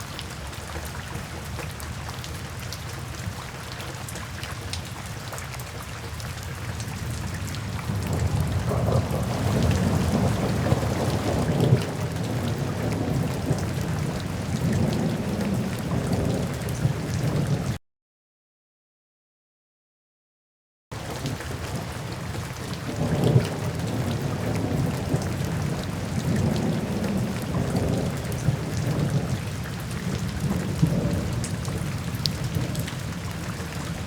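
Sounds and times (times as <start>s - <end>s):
rain drops hitting: 0.0s - 17.8s, 20.9s - 34.0s
thunder rumbling: 7.0s - 17.8s, 22.8s - 34.0s.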